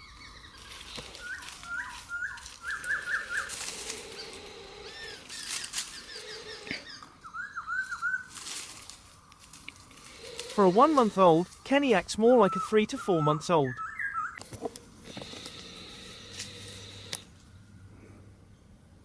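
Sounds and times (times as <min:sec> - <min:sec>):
small birds chirping: 0:00.0 - 0:08.4
rustling: 0:00.5 - 0:06.9, 0:07.8 - 0:11.7.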